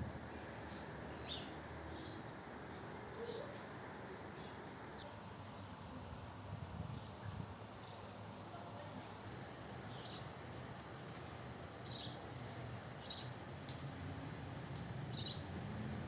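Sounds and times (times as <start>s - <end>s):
small birds chirping: 9.8s - 10.4s, 11.8s - 12.2s, 13.0s - 13.8s, 15.1s - 15.4s.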